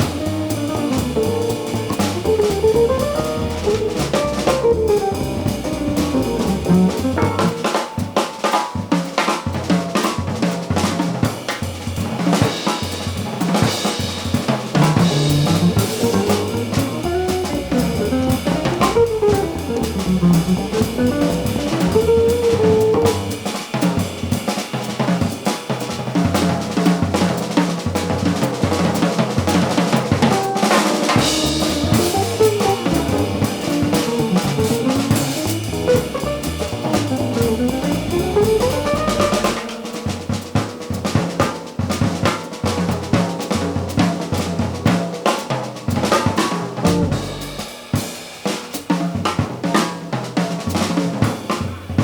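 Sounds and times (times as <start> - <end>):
winding melodic guitar line: 0.0 - 7.7, 15.0 - 23.3, 31.2 - 40.0
drum kit playing: 0.0 - 52.0.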